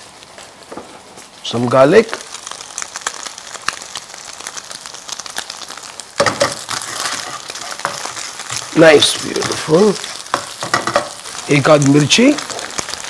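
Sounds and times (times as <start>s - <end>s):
ginger and garlic sizzling in oil: 0.0s - 13.0s.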